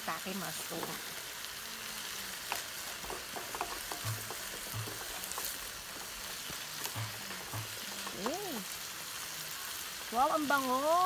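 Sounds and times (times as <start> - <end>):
mushrooms and onions sizzling: 0.0 - 11.0
wooden spatula scraping pan: 2.5 - 8.4.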